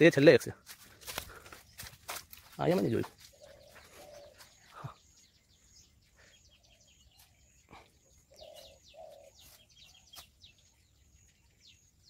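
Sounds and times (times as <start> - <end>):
faint birds chirping: 0.0 - 12.0
rustles or footfalls: 0.6 - 4.5.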